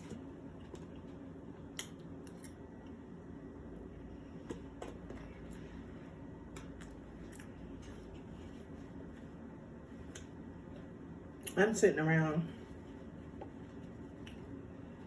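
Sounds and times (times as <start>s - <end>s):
low room hum: 0.0s - 15.0s
chewing clicks and smacks: 0.6s - 2.9s.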